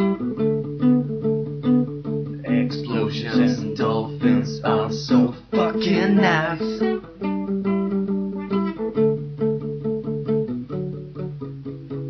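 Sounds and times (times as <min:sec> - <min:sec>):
guitar chords strummed: 0:00.0 - 0:12.0.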